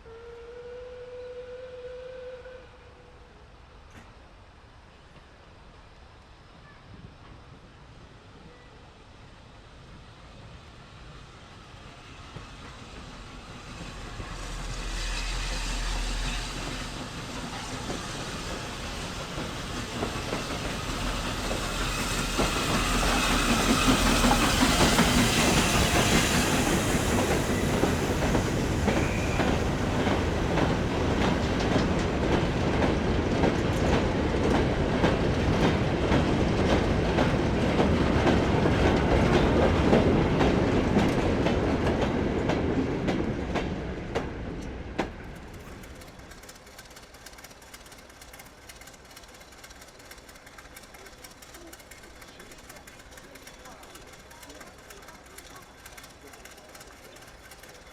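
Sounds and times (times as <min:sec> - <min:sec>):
train passing: 0:00.0 - 0:57.9
wheels clicking over rail joints: 0:16.3 - 0:57.9.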